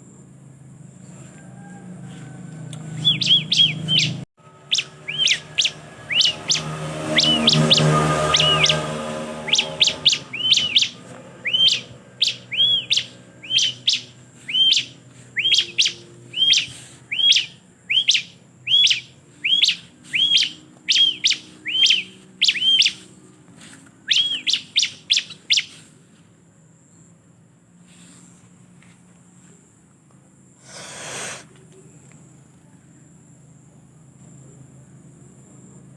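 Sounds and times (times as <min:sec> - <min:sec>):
bird calling sharp chips: 0:02.1 - 0:25.9
low pitched music: 0:04.4 - 0:13.4.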